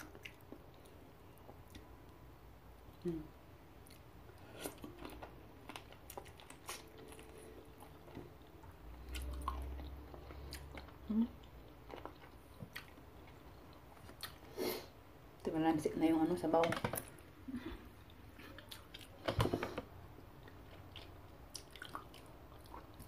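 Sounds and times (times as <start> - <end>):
person chewing with wet smacks: 0.0 - 2.2, 3.8 - 14.5, 17.8 - 19.3, 20.2 - 23.0.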